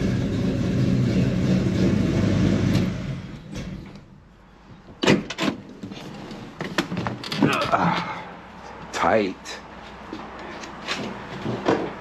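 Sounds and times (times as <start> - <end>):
engine switching off: 0.0 - 3.9.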